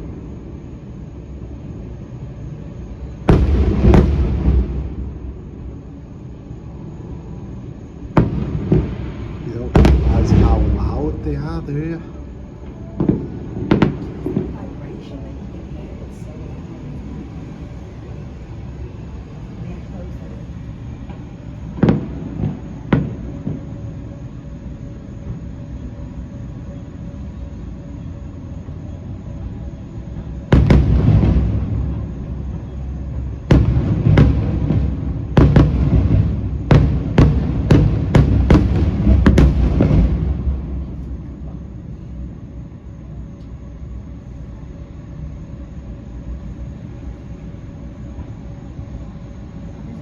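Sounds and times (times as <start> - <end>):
fireworks bursting with bangs: 0.0 - 26.3, 29.4 - 42.8
low rumble: 3.2 - 21.0.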